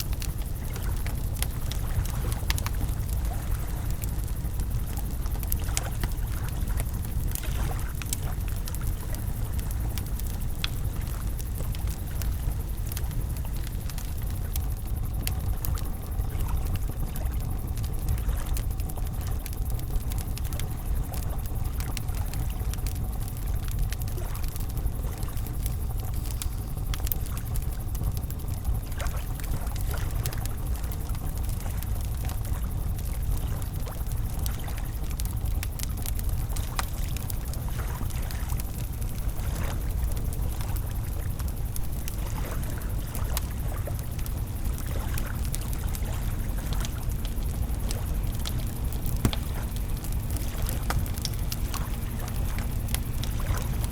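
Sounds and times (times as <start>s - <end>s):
campfire crackling: 0.0s - 53.9s.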